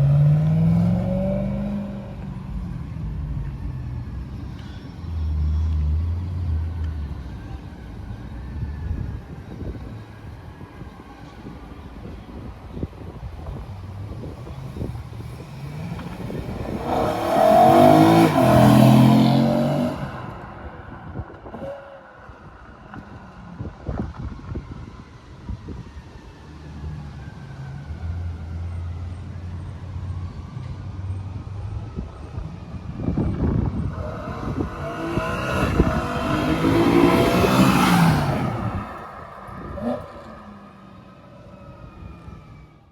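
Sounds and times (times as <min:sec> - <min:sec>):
car engine revving: 0:00.0 - 0:02.6, 0:14.4 - 0:20.5, 0:33.4 - 0:42.2.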